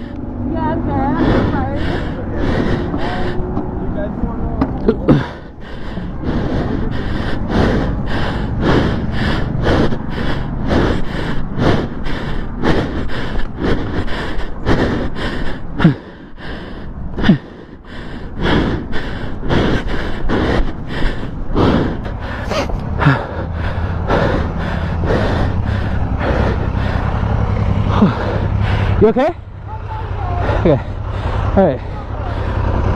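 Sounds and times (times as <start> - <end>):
engine humming: 0.0 - 32.9
person sobbing and gasping: 4.8 - 27.1, 27.9 - 28.7
person wailing: 22.0 - 23.6.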